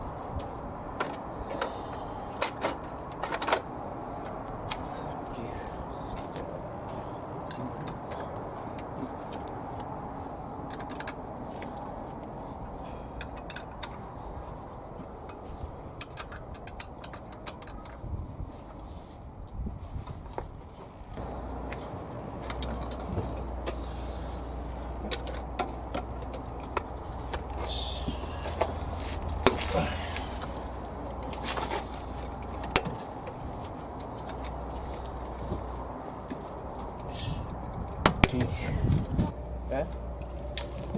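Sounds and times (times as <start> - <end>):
steady low hum: 21.2 - 40.9.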